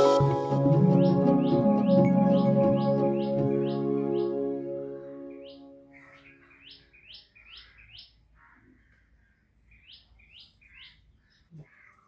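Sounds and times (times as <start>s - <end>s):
soft ambient music: 0.0s - 6.6s
small bird chirping: 5.4s - 12.0s.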